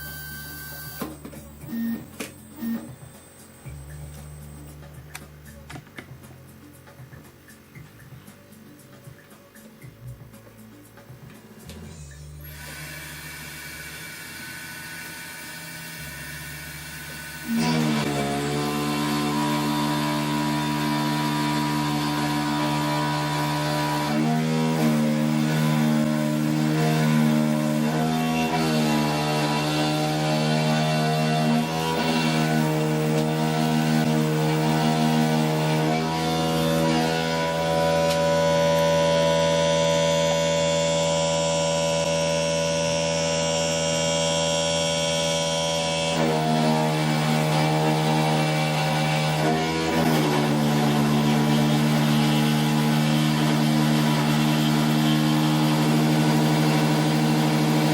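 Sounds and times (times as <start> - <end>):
engraving machine motors whining: 0.0 - 4.9, 12.4 - 57.9.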